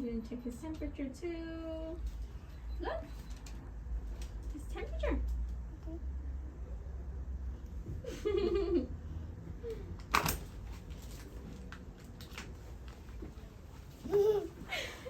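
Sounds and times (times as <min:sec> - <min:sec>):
small child giggling: 0:14.0 - 0:15.0.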